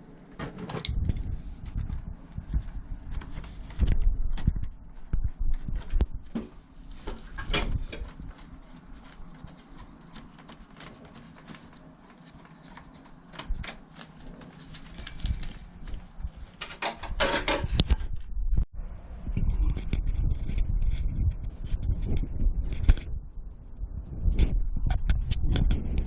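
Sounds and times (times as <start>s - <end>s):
objects clattering: 16.5s - 18.2s
hard objects clicking and knocking: 16.6s - 18.1s.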